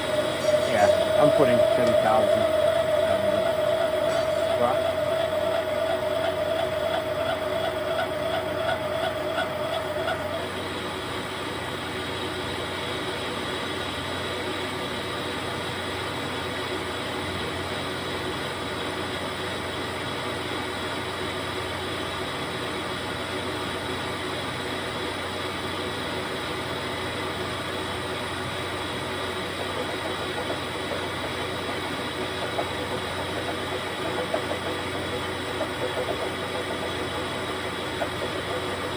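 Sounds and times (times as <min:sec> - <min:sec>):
lathe cutting tone: 0:00.0 - 0:12.7, 0:27.8 - 0:38.9
lathe humming: 0:00.0 - 0:14.9, 0:26.4 - 0:38.9.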